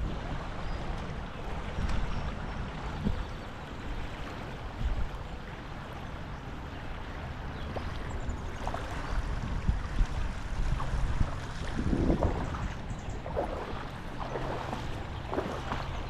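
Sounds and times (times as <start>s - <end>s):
creek rushing: 0.0s - 16.0s
low bumps: 9.6s - 16.0s.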